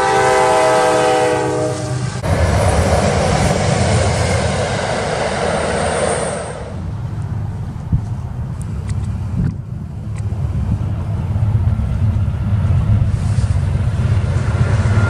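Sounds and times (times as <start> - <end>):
locomotive air horn chord: 0.0 - 2.3
train wheels rushing rumble: 0.0 - 15.0.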